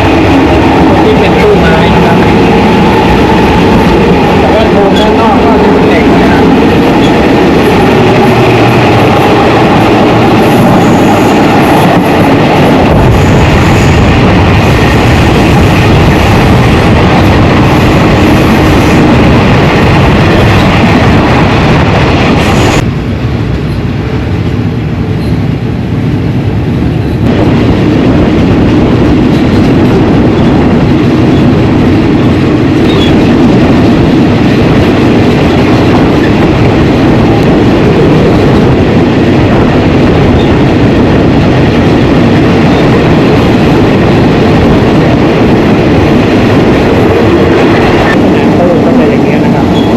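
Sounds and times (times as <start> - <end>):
train wheels rumbling on track: 0.0 - 49.9.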